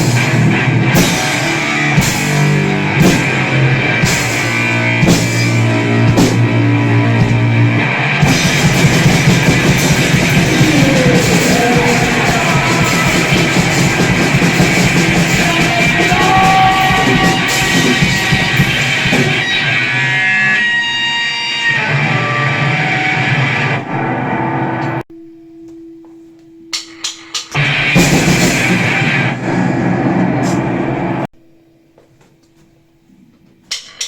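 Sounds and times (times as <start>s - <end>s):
drum kit playing: 0.0s - 23.4s, 26.7s - 31.2s, 33.7s - 34.0s
distorted electric guitar: 0.0s - 25.0s, 26.9s - 31.3s
short sharp hits: 3.0s - 7.5s.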